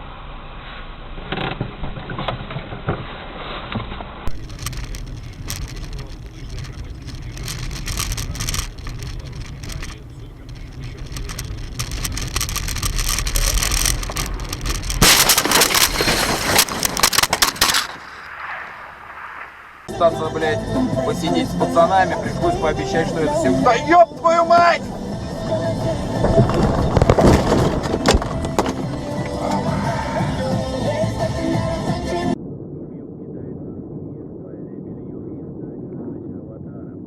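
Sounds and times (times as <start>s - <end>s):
loud rough noise: 0.0s - 20.0s, 24.8s - 32.3s
road noise: 3.7s - 32.4s
car engine: 4.3s - 19.9s, 21.9s - 31.4s.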